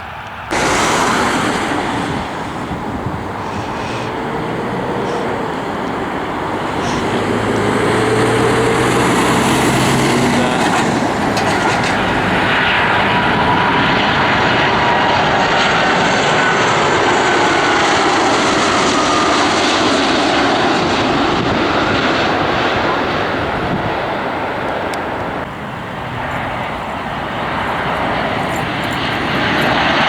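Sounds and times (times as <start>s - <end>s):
airliner engines passing: 0.0s - 30.0s
faint whining tones: 0.5s - 15.6s, 25.0s - 30.0s.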